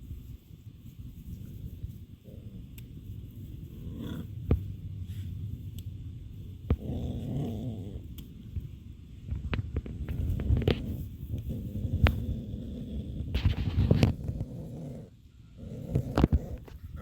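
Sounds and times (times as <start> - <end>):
puppies growling: 2.2 - 4.8, 6.6 - 8.3, 10.1 - 17.0.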